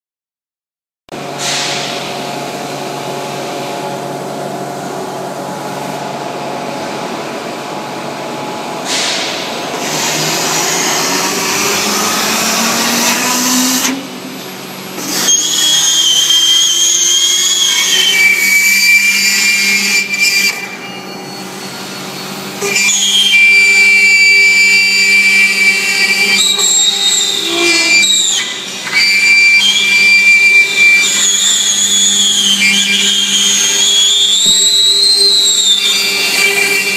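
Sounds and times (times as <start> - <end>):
milling spindle whining: 9.8 - 36.9.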